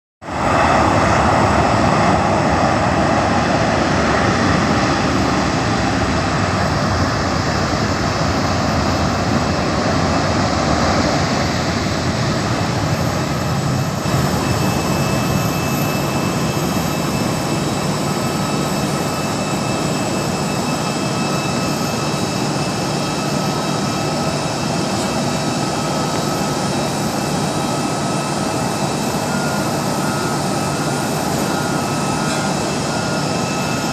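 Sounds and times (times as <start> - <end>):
jet engine roar: 0.2 - 33.9
faint high whines: 10.8 - 33.9.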